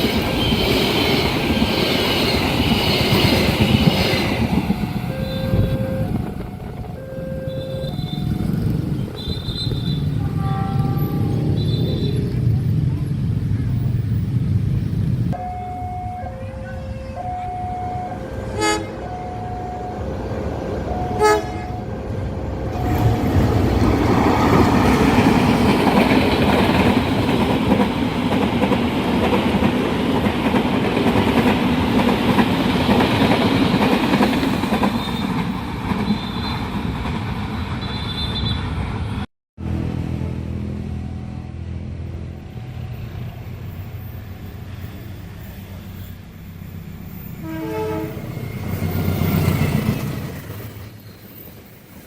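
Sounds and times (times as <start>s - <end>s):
train wheels rumbling: 0.0s - 52.0s
high wheel squeal: 0.3s - 12.4s, 42.6s - 52.0s
train horn toot: 5.0s - 12.3s, 15.4s - 23.6s, 47.4s - 48.4s.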